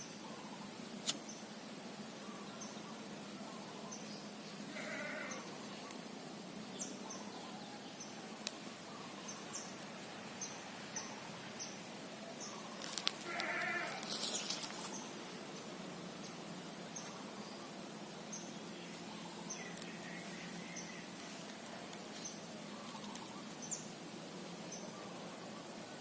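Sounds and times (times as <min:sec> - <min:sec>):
animal bleating call: 0:04.7 - 0:05.5, 0:13.2 - 0:14.2
brief rustle: 0:12.8 - 0:15.0.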